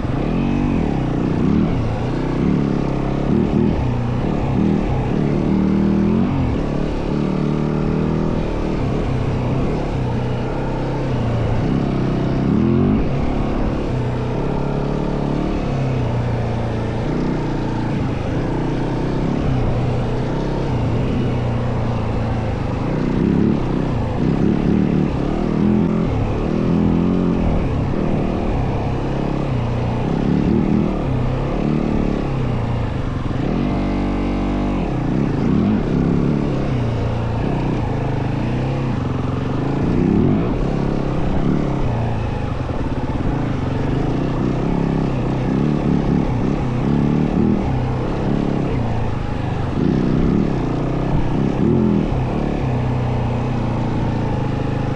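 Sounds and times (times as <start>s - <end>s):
dirt bike engine revving: 16.9s - 54.9s.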